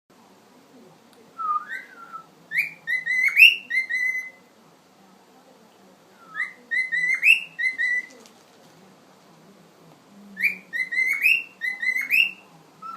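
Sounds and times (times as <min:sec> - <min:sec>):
cockatiel whistling a tune: 0:01.4 - 0:04.4, 0:06.2 - 0:08.1, 0:10.4 - 0:12.9.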